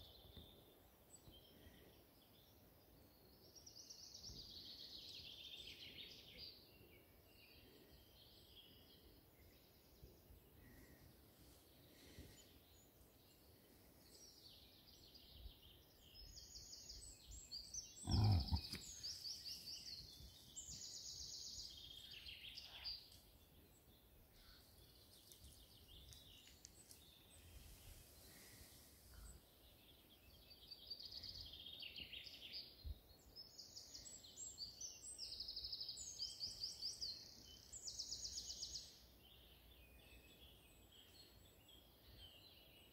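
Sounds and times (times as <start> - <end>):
small birds trilling: 11.7 - 32.7.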